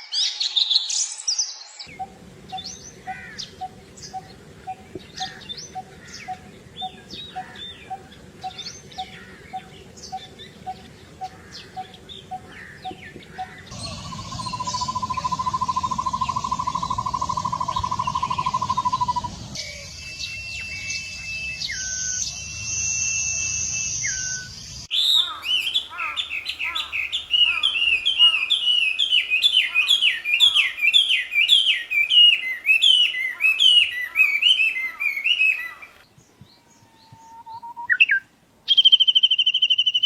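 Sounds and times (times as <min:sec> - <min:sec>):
low repeated bird note: 0:01.9 - 0:23.7
long even bird trill: 0:01.9 - 0:35.9
long whistled bird notes: 0:13.4 - 0:36.0.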